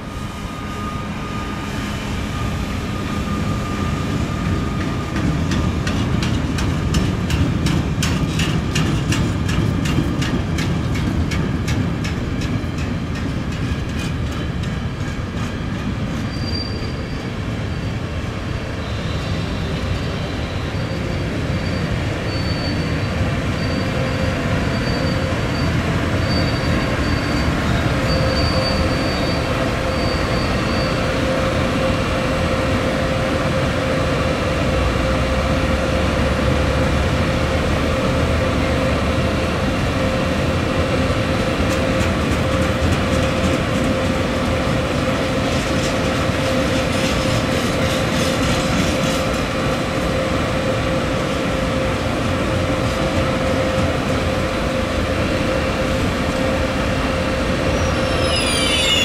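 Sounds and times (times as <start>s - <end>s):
train rumbling on tracks: 0.0s - 59.0s
wheel squeal: 15.5s - 18.0s, 18.8s - 31.0s, 57.7s - 59.0s.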